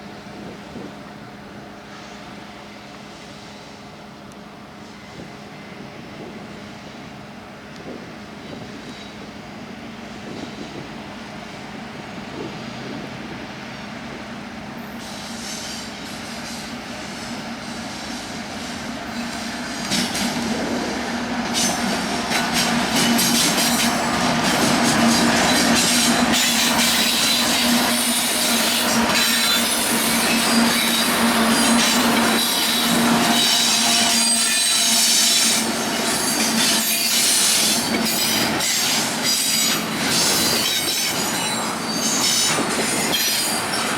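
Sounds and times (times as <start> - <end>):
freight train passing: 0.0 - 43.9
train wheels squealing: 8.4 - 9.4, 10.2 - 10.8, 14.8 - 20.8, 21.4 - 43.9.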